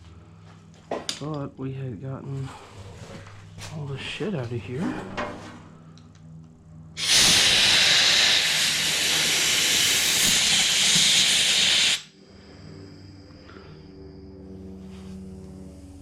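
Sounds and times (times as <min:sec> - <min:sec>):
pressurised air jet hissing: 0:07.0 - 0:12.1.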